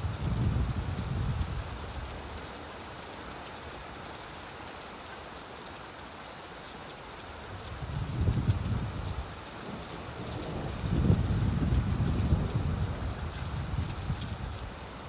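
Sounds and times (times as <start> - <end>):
low rumble of thunder: 0.0 - 1.8, 7.8 - 14.8
steady rain hiss: 0.0 - 15.0.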